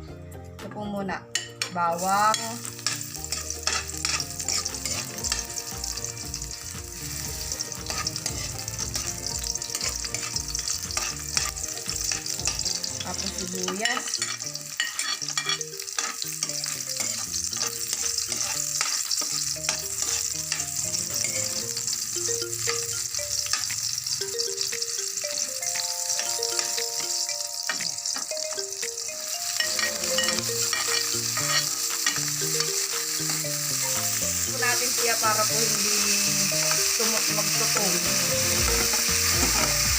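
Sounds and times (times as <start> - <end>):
food sizzling in hot oil: 1.4 - 39.9
spatula scraping a pan: 2.3 - 6.5, 7.1 - 22.0, 22.6 - 24.1, 29.6 - 33.4.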